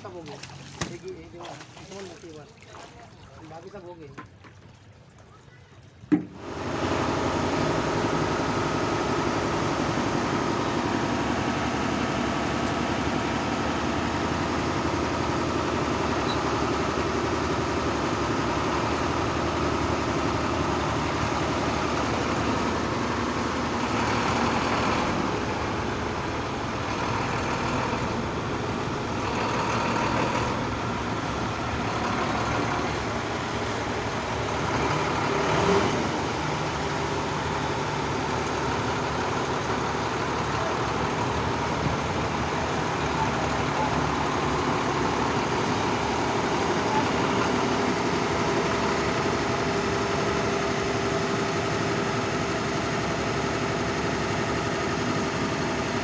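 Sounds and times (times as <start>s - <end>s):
diesel engine idling: 6.3s - 56.0s.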